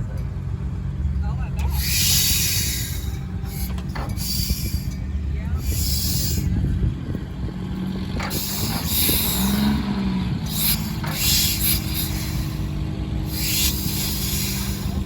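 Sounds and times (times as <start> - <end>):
engine low rumble: 0.0 - 15.0
short hisses: 1.7 - 5.0, 5.6 - 6.6, 8.3 - 9.9, 10.5 - 15.0.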